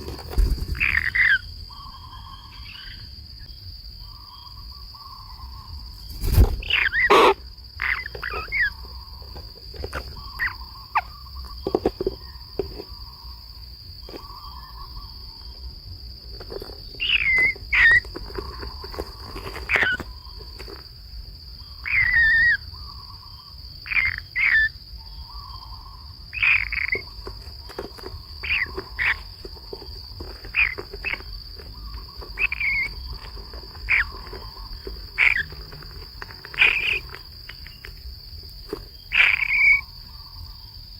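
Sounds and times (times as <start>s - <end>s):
high-pitched insect drone: 21.6s - 40.9s
short chirping bird calls: 30.5s - 35.7s, 36.4s - 37.9s.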